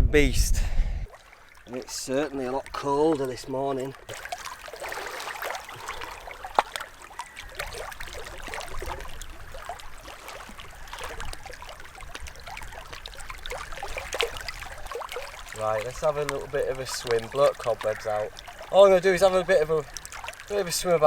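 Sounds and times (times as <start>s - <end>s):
water trickling over stones: 1.1s - 21.0s.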